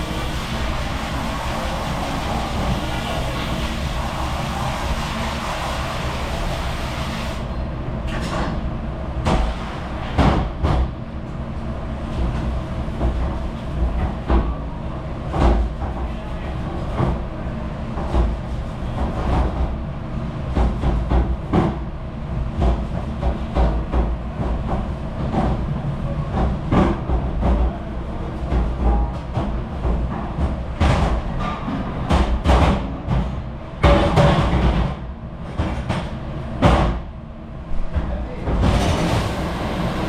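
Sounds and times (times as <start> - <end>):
dish machine rumbling: 0.0 - 6.9, 37.5 - 40.0.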